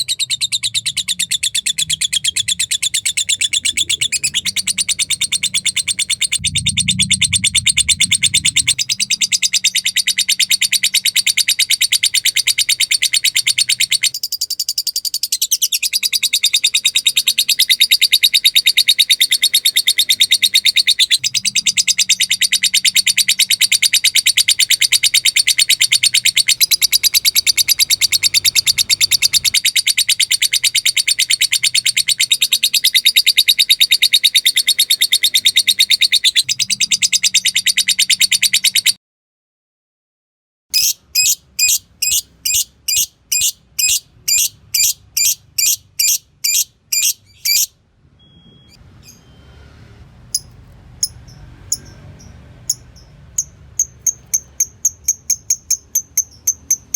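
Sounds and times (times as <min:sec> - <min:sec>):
lovebird chattering trill: 0:00.0 - 0:39.0, 0:40.7 - 0:47.7, 0:50.3 - 0:56.9
lovebird sharp chirps: 0:00.0 - 0:39.0, 0:40.7 - 0:47.8, 0:50.3 - 0:56.9.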